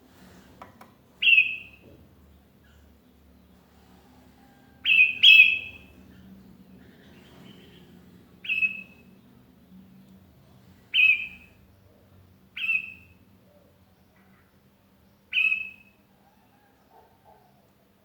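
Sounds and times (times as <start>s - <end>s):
bird calling: 1.2s - 1.9s, 4.4s - 9.1s, 10.9s - 11.6s.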